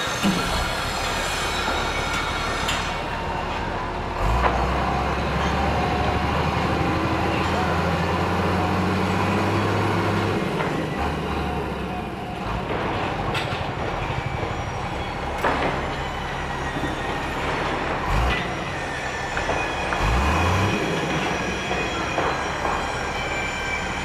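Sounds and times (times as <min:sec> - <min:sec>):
heavy vehicle rumbling: 0:00.0 - 0:24.0
high metallic squeal: 0:00.0 - 0:24.0
metallic clanks: 0:12.4 - 0:23.1.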